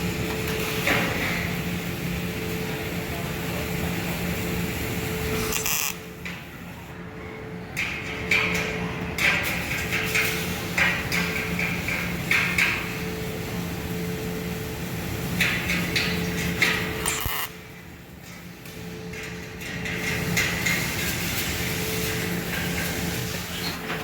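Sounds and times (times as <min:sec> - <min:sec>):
steady hum: 0:00.0 - 0:24.0
welding arc crackling: 0:04.0 - 0:06.3, 0:09.2 - 0:23.8.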